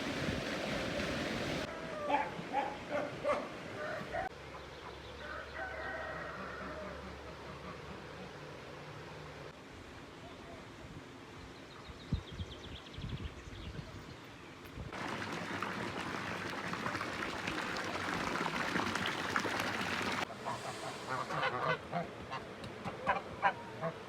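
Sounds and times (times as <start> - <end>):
waterfowl calling: 15.0 - 24.0.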